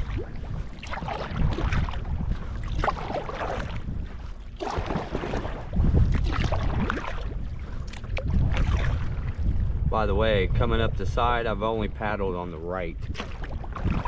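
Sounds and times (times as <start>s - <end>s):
paddle strokes splashing in water: 0.0s - 9.7s, 13.0s - 14.0s
wind rumbling on microphone: 0.0s - 14.0s.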